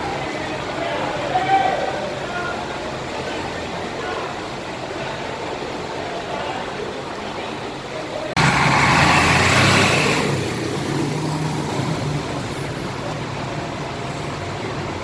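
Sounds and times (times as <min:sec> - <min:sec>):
large bus engine running: 0:00.0 - 0:15.0.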